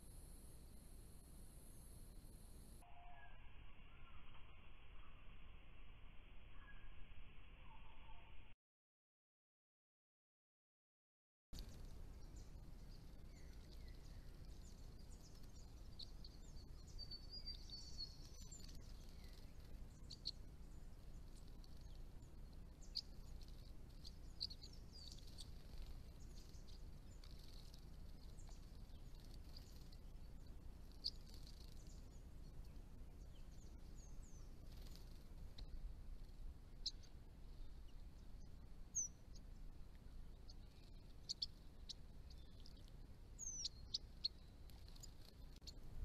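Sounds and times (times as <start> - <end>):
steady low hiss: 0.0 - 7.7, 11.6 - 46.0
bird twittering trill: 6.5 - 7.0, 11.6 - 46.0
small birds chirping: 11.6 - 46.0.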